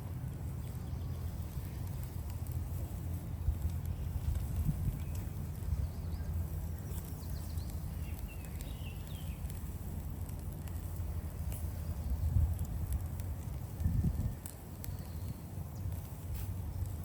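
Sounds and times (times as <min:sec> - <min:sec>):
fire crackling: 0:00.0 - 0:17.0
wind rumble on microphone: 0:00.0 - 0:17.0
bird chirps: 0:03.8 - 0:09.6.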